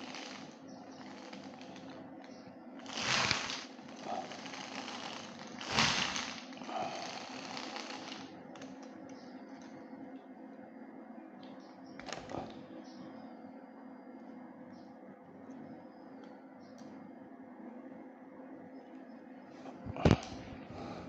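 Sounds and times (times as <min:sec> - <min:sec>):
small electric motor running: 0:00.0 - 0:01.9, 0:02.8 - 0:08.3.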